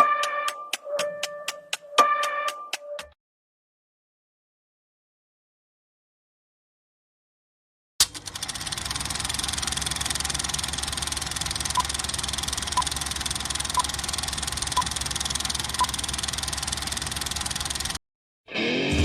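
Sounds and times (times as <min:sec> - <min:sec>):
fast-pulsing engine running: 0:08.0 - 0:18.0.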